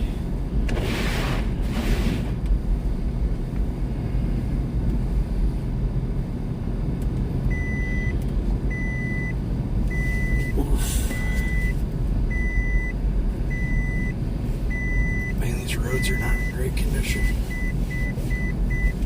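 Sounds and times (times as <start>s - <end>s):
car driving on snowy road: 0.0s - 19.0s
car warning beep: 7.5s - 19.0s.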